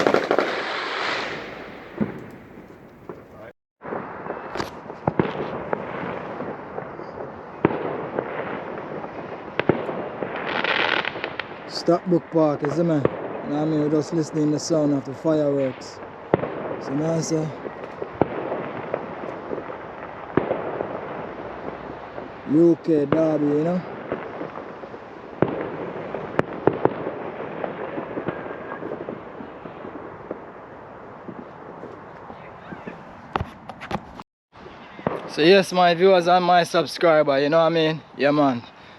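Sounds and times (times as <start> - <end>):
small firework pops: 0.0 - 3.5, 4.2 - 11.7, 16.0 - 16.7, 17.3 - 22.4, 23.1 - 29.7, 35.0 - 35.4
sharp firework bangs: 0.0 - 31.9, 34.9 - 36.4
fireworks crackling and rumbling: 0.0 - 38.9.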